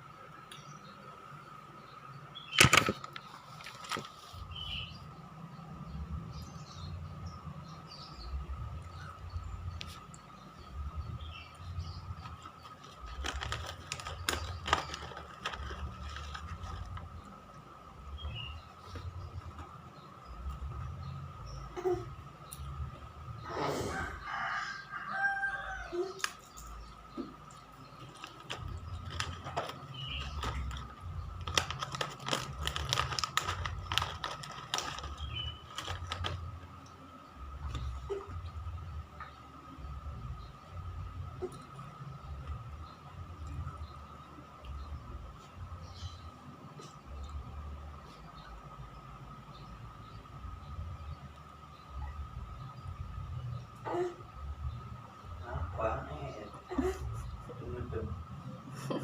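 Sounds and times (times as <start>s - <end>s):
clicks and rattles of moving parts: 2.6s - 4.2s, 12.2s - 17.2s, 28.0s - 36.6s.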